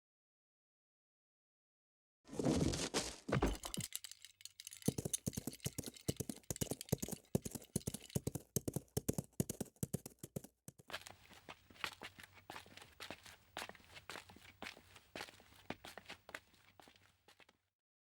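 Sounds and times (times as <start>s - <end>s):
footsteps on hard surface: 2.3s - 9.6s.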